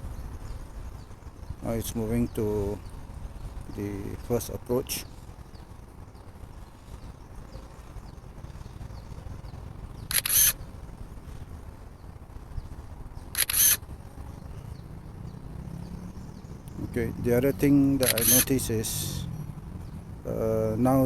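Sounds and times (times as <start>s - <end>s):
low steady rumble: 0.0s - 21.0s
camera shutter clicks: 10.1s - 10.6s, 13.4s - 13.8s, 18.0s - 18.5s.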